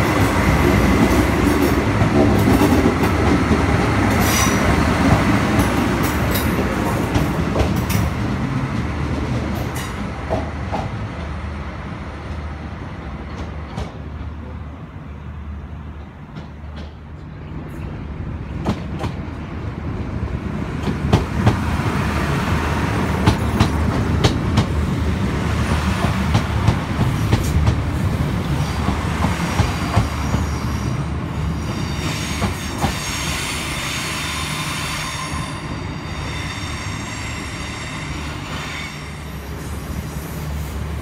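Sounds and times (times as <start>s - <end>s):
train rumbling past: 0.0s - 41.0s
high wheel squeal: 30.1s - 40.8s.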